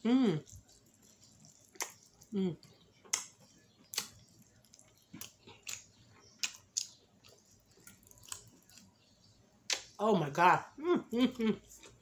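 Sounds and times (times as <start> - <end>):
wet mouth smacks while chewing: 0.6 - 2.3, 3.0 - 8.9.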